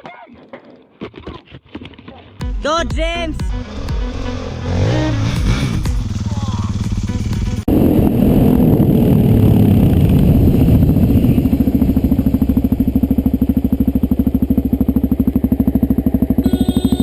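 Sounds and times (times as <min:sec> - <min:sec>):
motorcycle engine running: 0:03.4 - 0:17.0.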